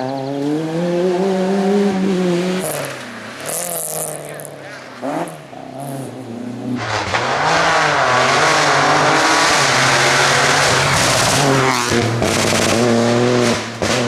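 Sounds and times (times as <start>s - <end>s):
rally car engine revving: 0.0s - 14.0s
tyre and road noise hiss: 2.4s - 7.8s.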